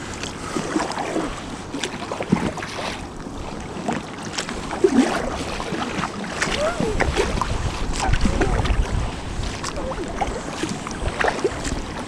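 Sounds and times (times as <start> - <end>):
water splashing around kayak: 0.0 - 12.0
wind on microphone: 0.0 - 12.0.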